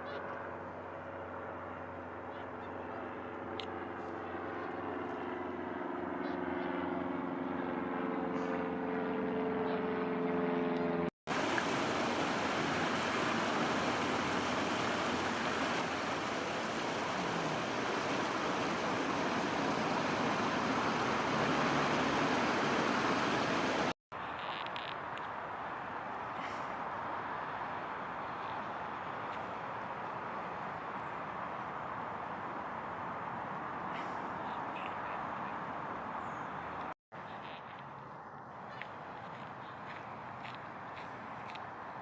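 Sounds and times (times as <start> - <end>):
passing engine hum: 6.7 - 24.0
steady rushing noise: 11.3 - 24.0.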